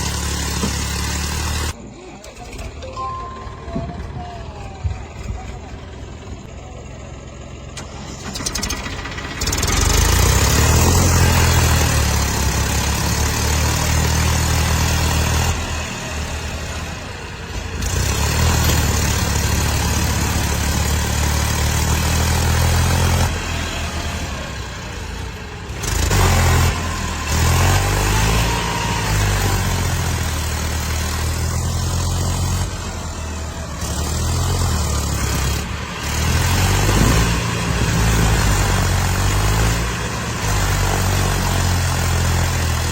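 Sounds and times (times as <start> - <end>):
tractor diesel engines revving: 0.0 - 42.9.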